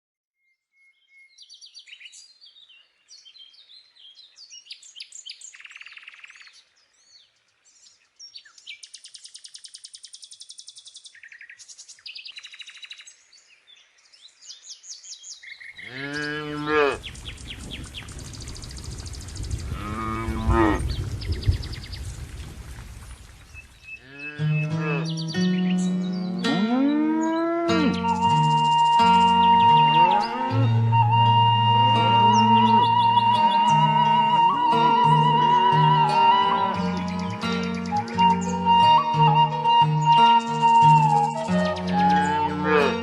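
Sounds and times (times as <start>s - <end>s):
birds singing and chirping: 0.8s - 43.0s
cow mooing: 15.8s - 17.0s, 19.7s - 21.0s, 24.0s - 25.2s, 26.5s - 28.3s, 29.2s - 31.4s, 42.3s - 43.0s.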